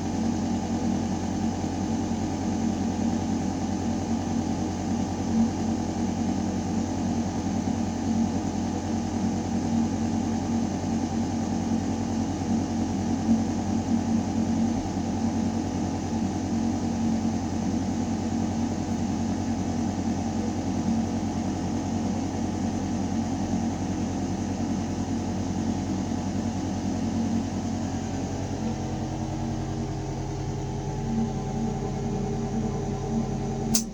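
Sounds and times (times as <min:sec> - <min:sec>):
ventilation system humming: 0:24.8 - 0:33.9.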